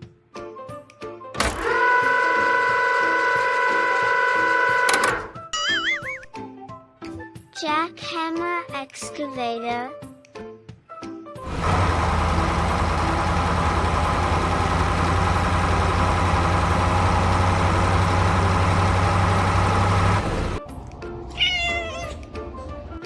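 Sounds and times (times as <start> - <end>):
loud steady humming noise: 11.5 - 21.4
kitten meowing: 20.9 - 23.0.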